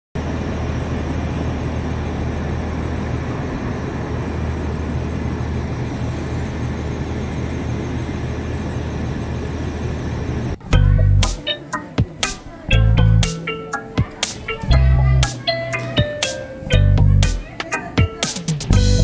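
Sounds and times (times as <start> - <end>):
aircraft engines rumbling: 0.2 - 19.0.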